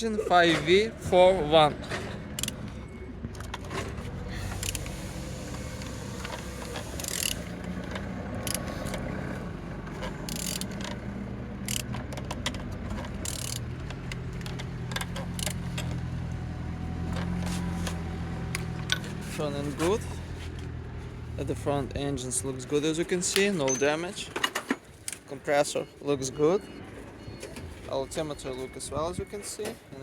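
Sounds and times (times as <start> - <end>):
wrench clicking and scraping: 2.0 - 2.7, 4.3 - 9.1, 10.0 - 16.0.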